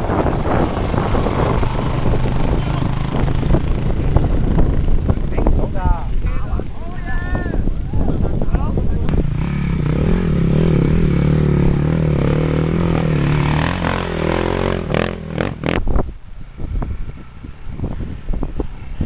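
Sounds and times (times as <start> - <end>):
dirt bike engine running: 0.0 - 6.2, 9.1 - 16.2.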